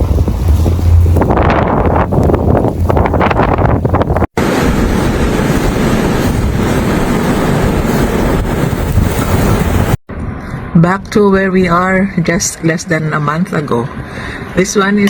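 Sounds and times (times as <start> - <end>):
loud steady rushing noise: 0.0 - 10.8.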